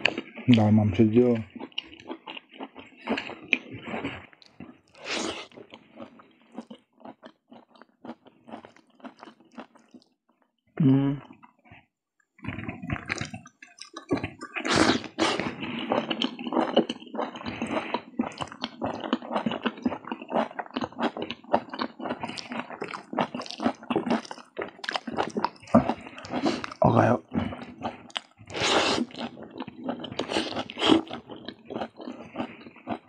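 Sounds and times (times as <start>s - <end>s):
chewing noodles: 0.0s - 10.5s, 11.2s - 33.0s
wet mouth clicks and smacks: 13.0s - 14.6s.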